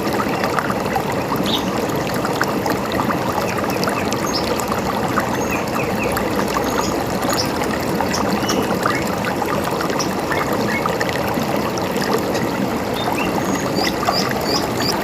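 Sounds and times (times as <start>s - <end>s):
river running: 0.0s - 15.0s
small birds chirping: 12.9s - 15.0s.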